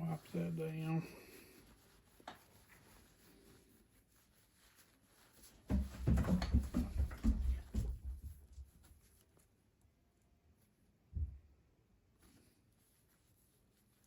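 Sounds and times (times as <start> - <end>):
cloth rubbing a pocketknife: 0.0 - 5.7, 12.2 - 14.0.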